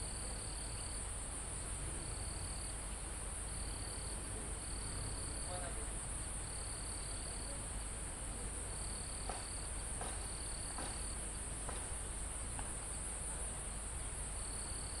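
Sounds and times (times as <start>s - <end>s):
low insect trill: 0.0s - 7.8s, 12.8s - 15.0s.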